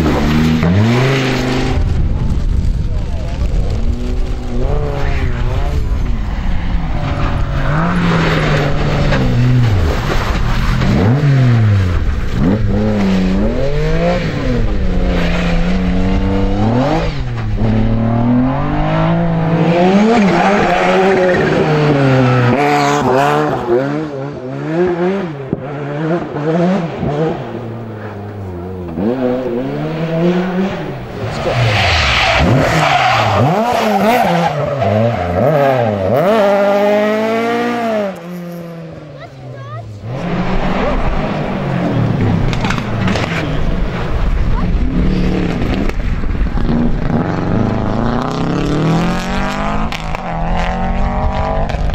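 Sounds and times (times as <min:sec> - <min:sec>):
rally car engines at full throttle: 0:00.0 - 0:51.9
tyre noise from sliding cars: 0:24.9 - 0:51.9.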